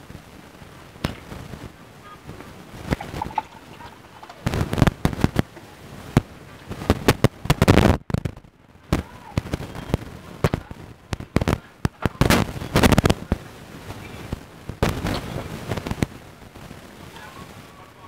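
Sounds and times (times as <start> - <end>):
crunchy crackles: 0.0 - 18.0.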